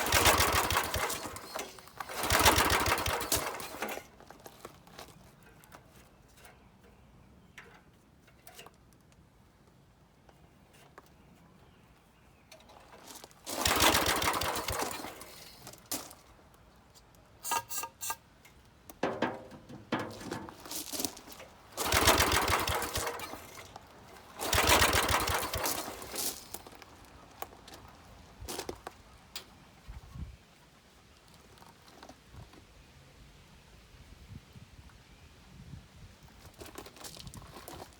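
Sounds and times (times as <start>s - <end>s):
small engine cranking: 0.0s - 4.8s, 12.9s - 16.2s, 21.2s - 26.8s
clanks and rattles: 0.0s - 6.7s, 12.5s - 16.2s, 17.4s - 27.8s.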